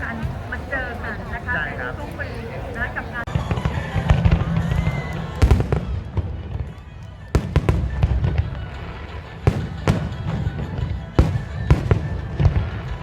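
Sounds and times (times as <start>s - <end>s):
background music: 0.0s - 13.0s
fireworks bursting bangs: 3.2s - 13.0s.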